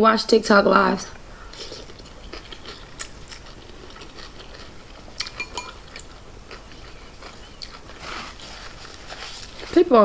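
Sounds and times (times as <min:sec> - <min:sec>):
chewing noodles: 0:01.2 - 0:09.8
mouth clicks and smacks: 0:01.5 - 0:05.4.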